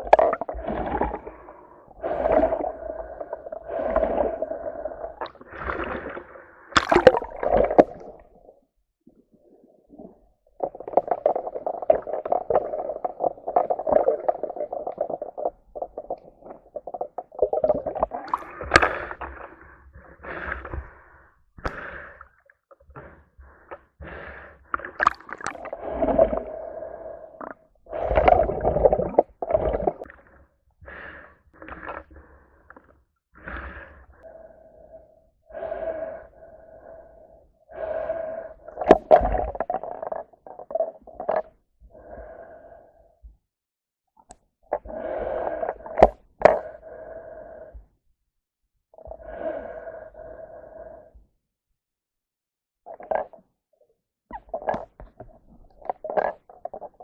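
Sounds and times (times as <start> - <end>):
sea water splashing and gurgling: 0.0 - 8.6, 9.3 - 22.2, 23.5 - 32.6, 33.4 - 41.4.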